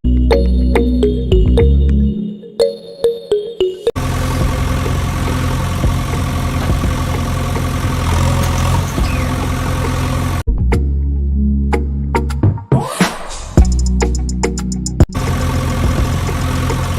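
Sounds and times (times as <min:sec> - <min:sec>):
music: 0:00.0 - 0:05.0, 0:06.6 - 0:07.8, 0:08.9 - 0:09.4, 0:10.5 - 0:16.9
vehicle engine running: 0:04.0 - 0:10.5, 0:15.0 - 0:16.9.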